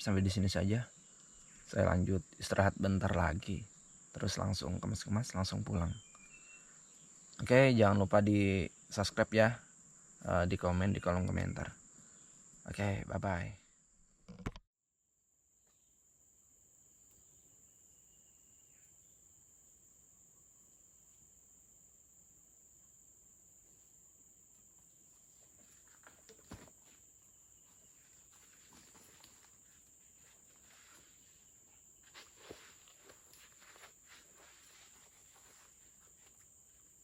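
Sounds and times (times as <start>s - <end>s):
insects droning: 0.0s - 14.0s, 15.2s - 37.0s
soft rustles and knocks: 25.3s - 36.9s.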